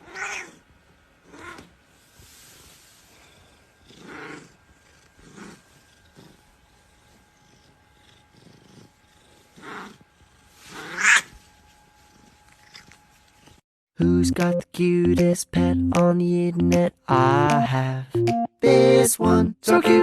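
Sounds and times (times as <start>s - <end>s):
cat meowing: 0.0s - 0.6s.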